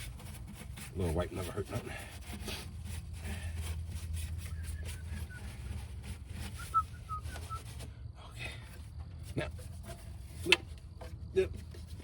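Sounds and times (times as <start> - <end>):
rag rubbing on metal: 0.0 - 7.9.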